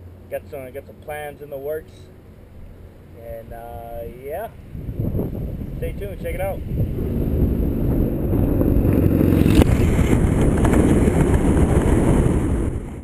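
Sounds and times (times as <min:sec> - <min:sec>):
wind rushing on microphone: 0:03.2 - 0:13.0
motorcycle engine running: 0:06.6 - 0:12.7.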